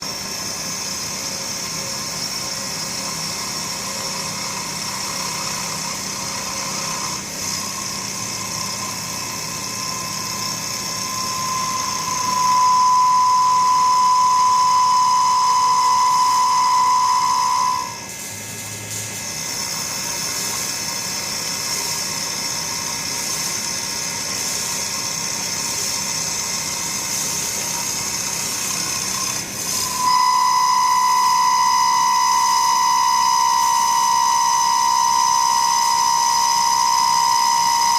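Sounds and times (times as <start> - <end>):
woodworking machine whining: 0.0 - 37.9.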